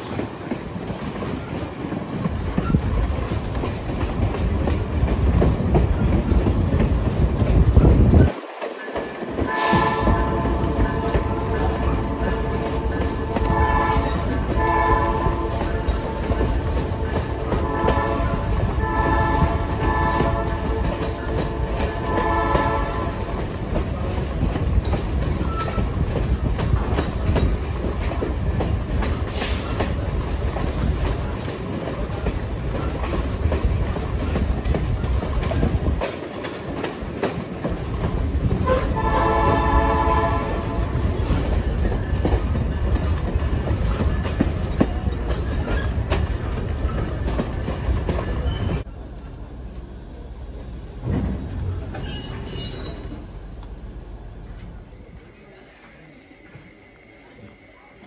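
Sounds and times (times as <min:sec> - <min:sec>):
train wheels rumbling on rail: 0:00.0 - 0:58.0
locomotive air horn blasts: 0:09.5 - 0:15.9, 0:17.5 - 0:23.2, 0:38.6 - 0:40.9.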